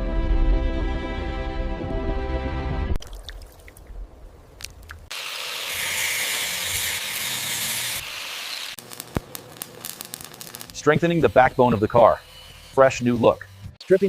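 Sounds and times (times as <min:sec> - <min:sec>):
background music: 0:00.0 - 0:03.0.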